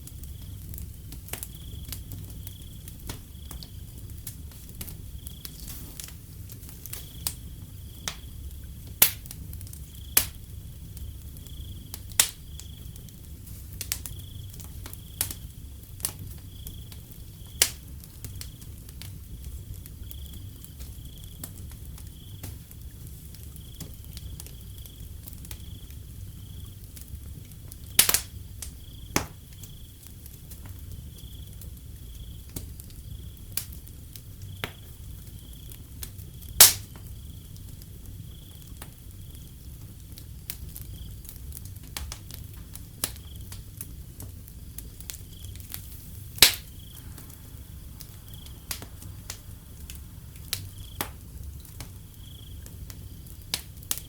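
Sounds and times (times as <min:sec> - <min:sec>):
crickets trilling: 0:00.0 - 0:54.0
loud fire pops: 0:00.0 - 0:54.0
wood fire crackling: 0:00.0 - 0:54.0
low steady rumble: 0:42.4 - 0:54.0.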